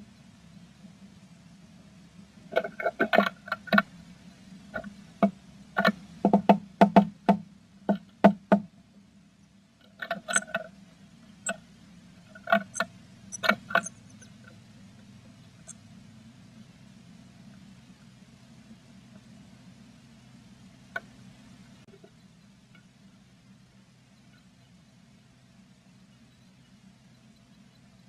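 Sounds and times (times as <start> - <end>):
birds knocking on wood: 2.5 - 3.9, 4.7 - 8.7, 12.3 - 14.6.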